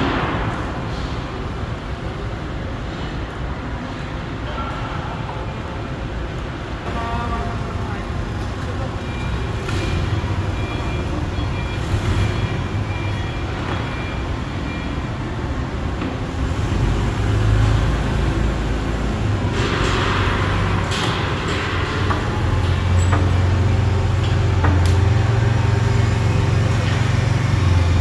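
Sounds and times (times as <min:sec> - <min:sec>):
large engine rumbling: 0:06.0 - 0:28.0.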